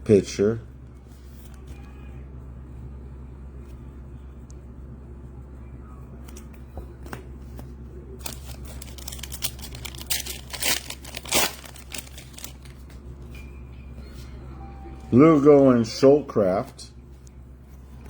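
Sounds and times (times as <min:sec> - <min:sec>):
steady low hum: 0:00.0 - 0:18.0
foil wrapper tearing and crinkling: 0:08.2 - 0:12.8.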